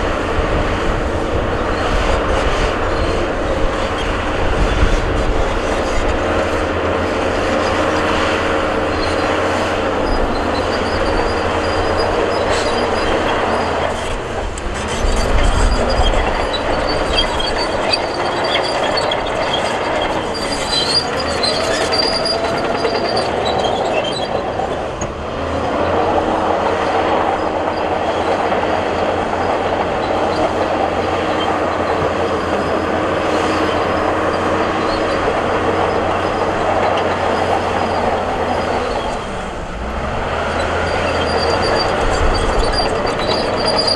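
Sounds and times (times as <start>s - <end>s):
bulldozer diesel engine running: 0.0s - 43.9s
steel tracks squealing and clanking: 0.0s - 43.9s.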